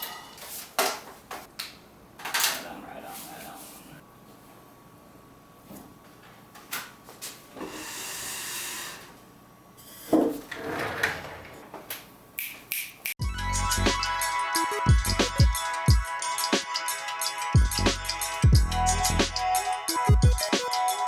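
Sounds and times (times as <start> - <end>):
music with a beat: 13.2 - 21.0.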